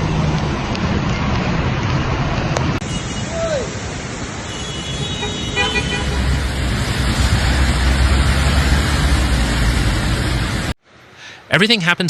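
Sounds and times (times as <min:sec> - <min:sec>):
rushing water and traffic: 0:00.0 - 0:12.0
car horn: 0:02.8 - 0:03.7, 0:04.4 - 0:06.4.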